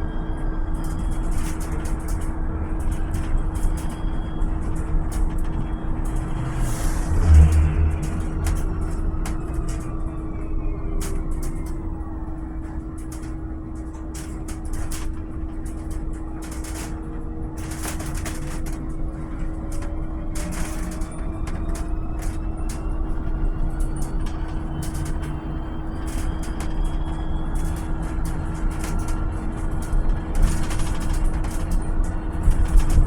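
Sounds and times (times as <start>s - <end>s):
low road rumble: 2.2s - 13.2s
electric drive whine: 3.3s - 13.4s
steady hum: 4.0s - 12.2s.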